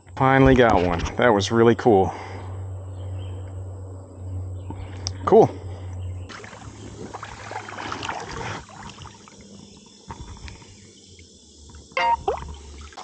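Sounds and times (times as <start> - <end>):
water sloshing and splashing: 6.3 - 10.7, 11.7 - 13.0.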